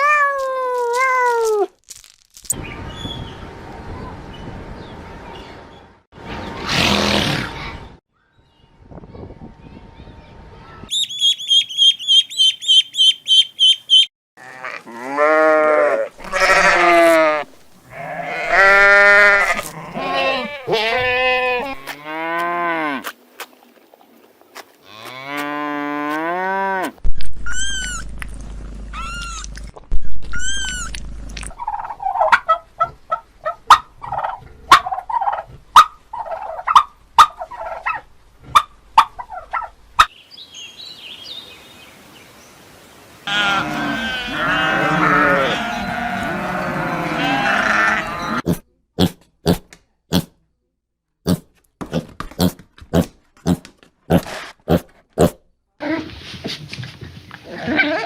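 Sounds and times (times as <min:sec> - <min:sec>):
long rising and falling animal calls: 0:43.3 - 0:48.4.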